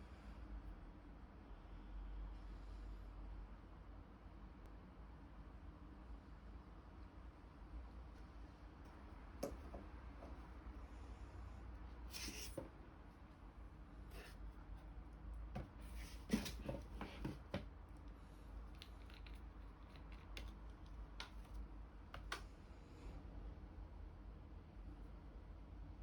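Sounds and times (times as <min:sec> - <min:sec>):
small objects clicking and tapping: 0:18.7 - 0:21.6.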